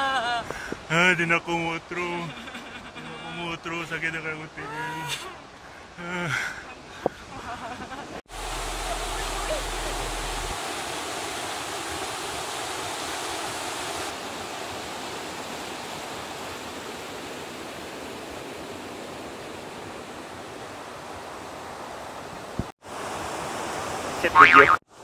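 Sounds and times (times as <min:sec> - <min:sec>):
stream rushing over rocks: 0:08.3 - 0:24.8.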